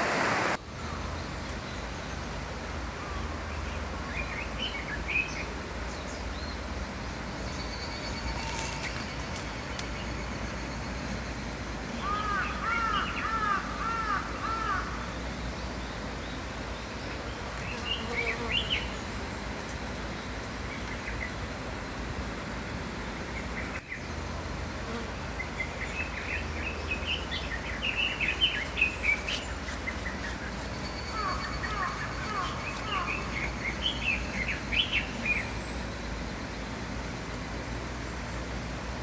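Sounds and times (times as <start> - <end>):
stream flowing: 0.0 - 1.1
songbirds chirping: 22.8 - 37.4.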